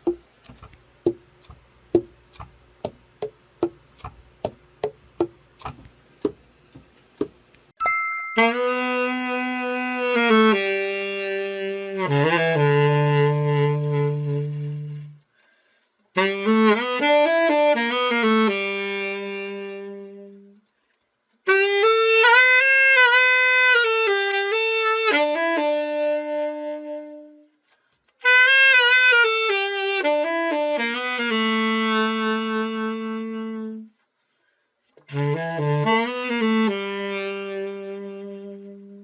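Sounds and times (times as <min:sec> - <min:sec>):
tenor saxophone solo: 0:08.4 - 0:15.2, 0:16.2 - 0:20.6, 0:21.5 - 0:27.6, 0:28.2 - 0:34.0, 0:35.0 - 0:39.0.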